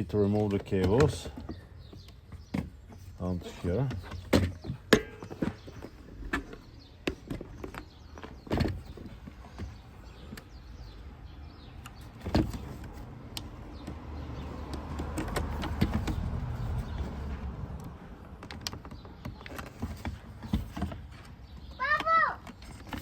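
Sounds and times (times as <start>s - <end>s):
scraping and rustling: 0.0s - 23.0s
plastic clicks and knocks: 14.6s - 23.0s.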